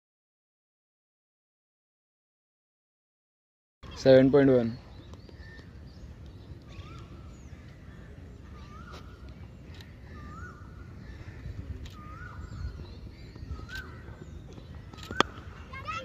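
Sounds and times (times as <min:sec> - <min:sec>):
outdoor background noise: 0:03.8 - 0:16.0.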